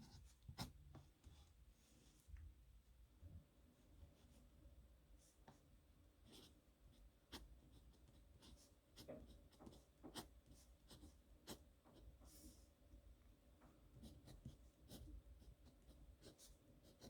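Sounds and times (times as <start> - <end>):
pen scratching on paper: 6.2 - 6.6, 7.3 - 12.5, 14.0 - 17.0.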